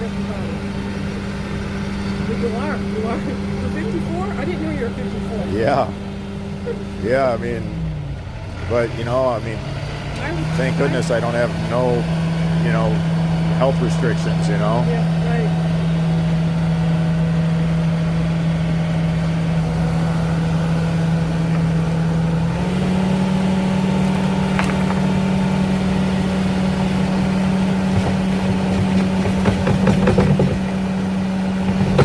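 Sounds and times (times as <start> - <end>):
engine idling: 0.0 - 32.0
knocks and clanks: 24.2 - 25.2, 27.8 - 30.9, 31.6 - 32.0.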